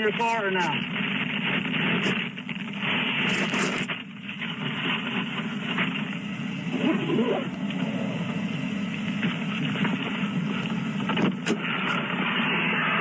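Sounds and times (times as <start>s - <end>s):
engine running: 0.2s - 13.0s
traffic noise: 4.0s - 12.2s.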